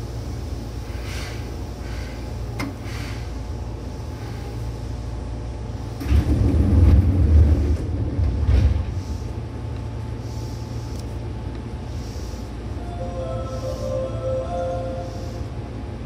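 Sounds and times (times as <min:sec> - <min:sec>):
electric train rumbling: 0:00.0 - 0:16.0.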